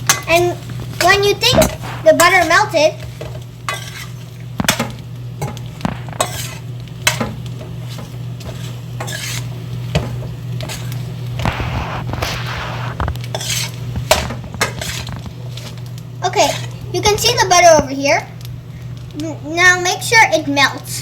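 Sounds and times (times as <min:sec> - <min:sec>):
spoon knocking and scraping pot: 0:03.2 - 0:10.9.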